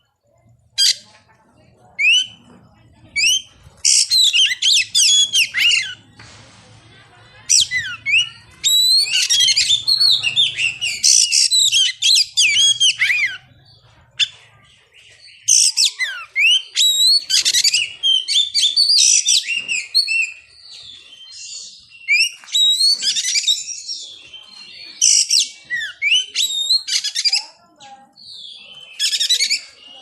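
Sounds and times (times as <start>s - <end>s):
bird singing whistles and chirps: 7.5s - 14.4s, 15.0s - 27.4s.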